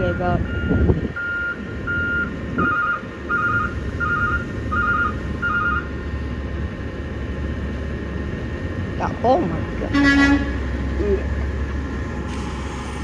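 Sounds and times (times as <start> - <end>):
truck reversing alarm beeping: 0.0 - 6.5, 9.9 - 13.0
diesel engine rumble: 0.0 - 13.0.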